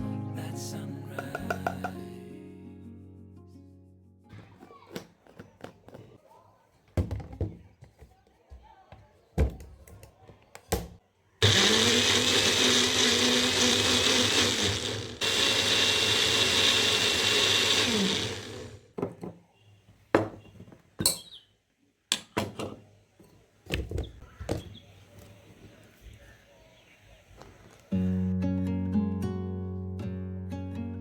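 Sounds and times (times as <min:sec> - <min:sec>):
blender motor running: 0:11.4 - 0:18.9.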